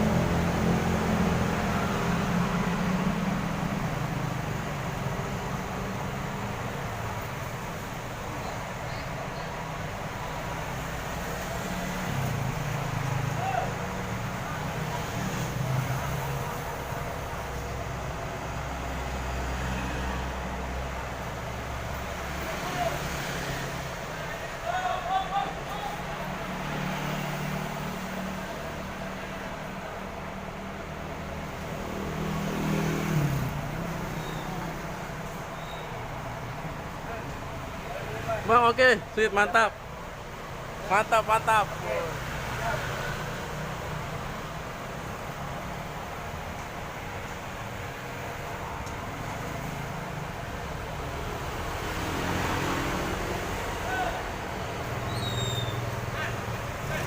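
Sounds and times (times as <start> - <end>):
diesel bus engine running: 0.0 - 23.0.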